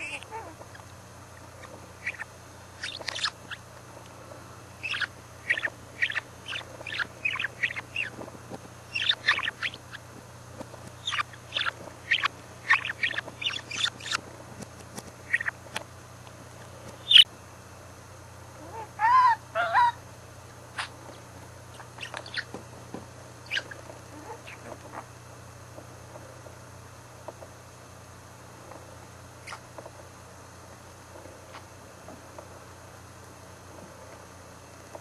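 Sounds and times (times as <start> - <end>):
budgerigar chirping: 0.0 - 0.7, 1.6 - 3.6, 4.8 - 8.2, 8.9 - 10.0, 11.0 - 14.2, 15.3 - 15.6, 17.0 - 17.2, 18.6 - 20.0, 21.7 - 22.5, 23.4 - 25.0
budgerigar warbling calls: 0.0 - 0.8, 1.4 - 3.6, 4.8 - 8.2, 8.9 - 10.0, 11.0 - 14.2, 15.3 - 15.6, 17.0 - 17.2, 18.6 - 20.0, 21.7 - 22.5, 23.4 - 25.1.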